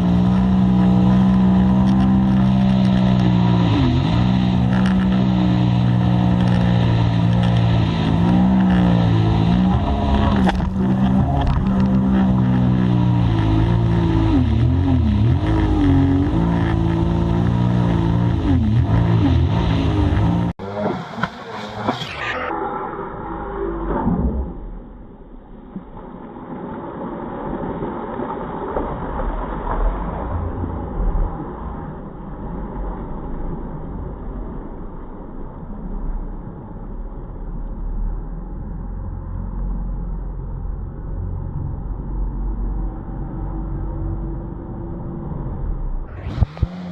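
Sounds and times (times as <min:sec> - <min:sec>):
jet ski engine revving: 0:00.0 - 0:22.1, 0:46.2 - 0:46.9
jet ski engine rumble: 0:00.0 - 0:46.9.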